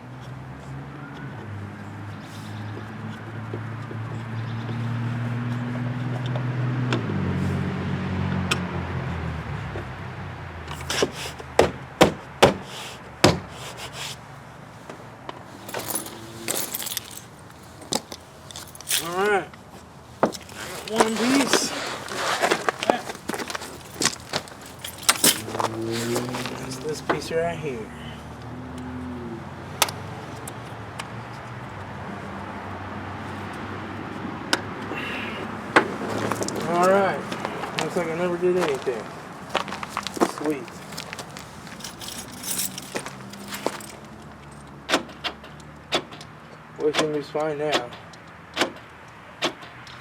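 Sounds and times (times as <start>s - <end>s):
small parts rattling: 15.5s - 19.4s, 20.2s - 27.3s, 39.5s - 44.7s.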